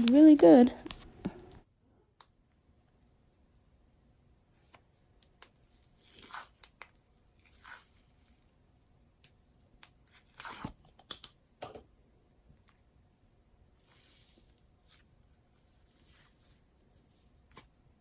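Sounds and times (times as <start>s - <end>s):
small clicks and pops: 11.0s - 11.8s.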